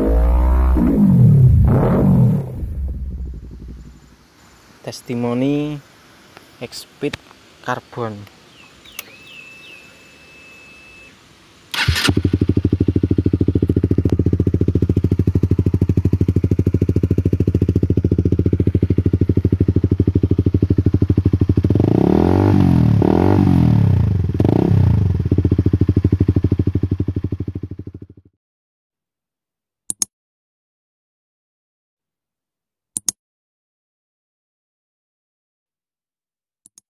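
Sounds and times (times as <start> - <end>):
motorcycle starting and revving: 0.0 - 4.1, 11.7 - 28.3.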